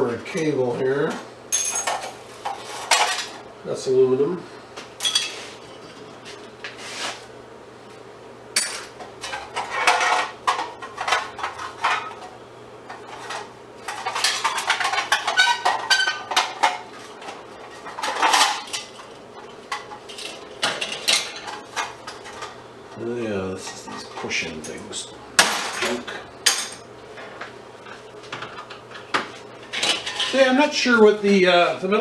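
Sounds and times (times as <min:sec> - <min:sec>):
scrap metal clinking: 0:01.6 - 0:03.4, 0:05.0 - 0:06.1.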